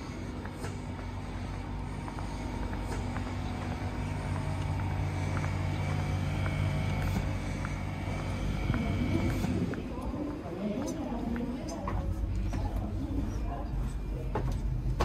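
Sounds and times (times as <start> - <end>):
deeper hum: 0.0 - 15.0
electrical and fan hum: 0.0 - 15.0.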